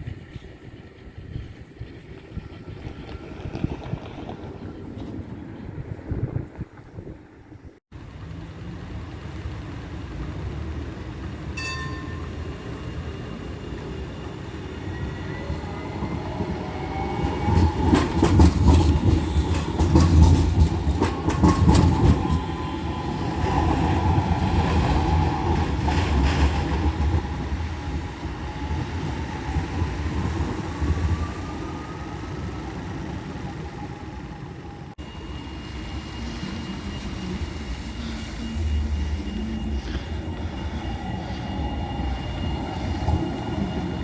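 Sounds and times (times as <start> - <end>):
tram motor whine: 0.0 - 44.0
tram bell ring: 11.4 - 28.1, 35.0 - 44.0
wheels clattering over rail joints: 17.0 - 28.0.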